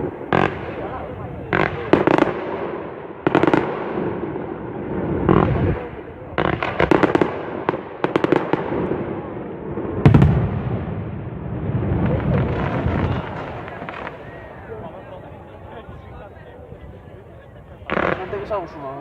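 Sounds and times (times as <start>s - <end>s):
fireworks crackling: 0.0s - 19.0s
firework boom: 8.7s - 14.9s
deep rolling rumble: 9.6s - 17.8s.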